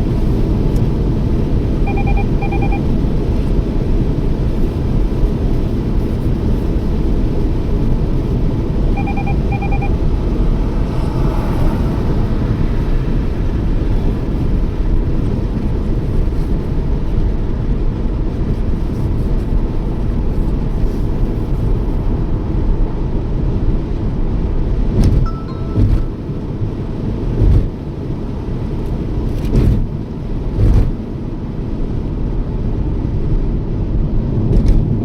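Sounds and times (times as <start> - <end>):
car interior road noise: 0.0 - 35.0
short double beep: 1.9 - 2.9, 9.0 - 11.0, 25.3 - 26.4.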